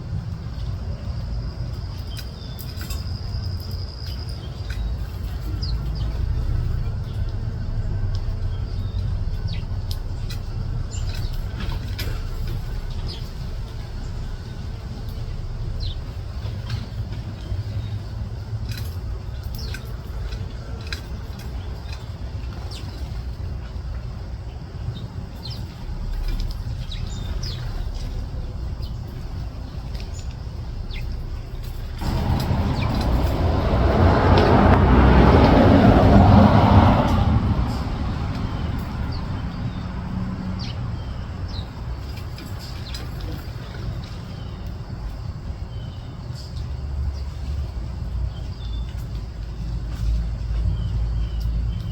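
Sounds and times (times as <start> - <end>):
low outdoor rumble: 0.0 - 51.9
small birds chirping: 0.5 - 34.5, 37.1 - 51.9
loud rushing noise: 25.8 - 40.3.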